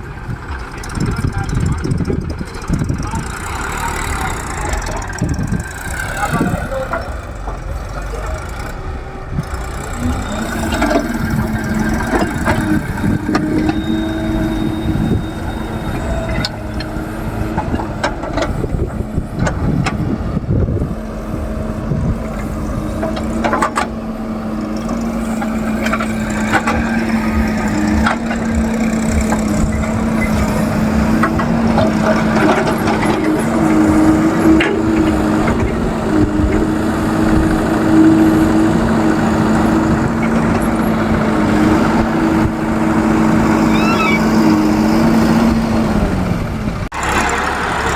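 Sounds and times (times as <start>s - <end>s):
diesel engine running: 0.0s - 47.9s
digging knocks and clanks: 10.4s - 15.2s, 15.8s - 20.8s, 21.6s - 42.2s.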